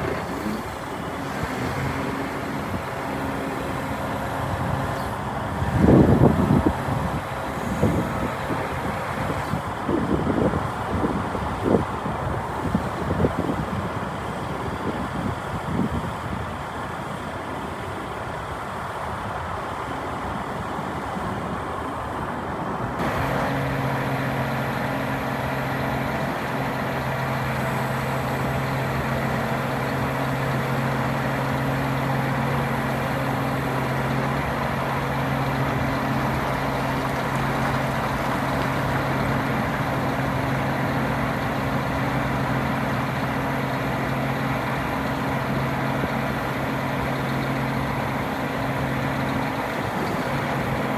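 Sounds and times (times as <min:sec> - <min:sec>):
truck diesel engine running: 0:00.0 - 0:15.2, 0:23.0 - 0:50.9.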